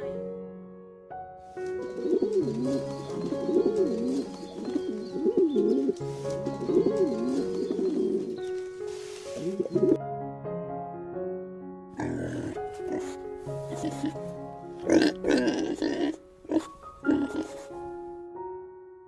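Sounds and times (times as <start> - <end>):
background music with held notes: 0.0 - 19.0
pigeon cooing: 1.6 - 10.0, 12.0 - 14.2, 14.9 - 17.7.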